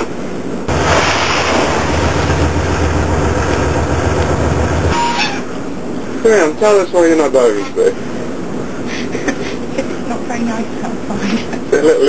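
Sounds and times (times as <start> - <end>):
rushing wind: 0.0 - 6.2
sea noise: 0.0 - 6.2
boat engine running: 0.7 - 5.1.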